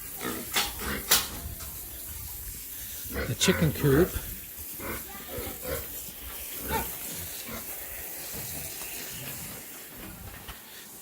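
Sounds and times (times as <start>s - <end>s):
pigs grunting: 0.1s - 1.3s, 3.0s - 9.6s.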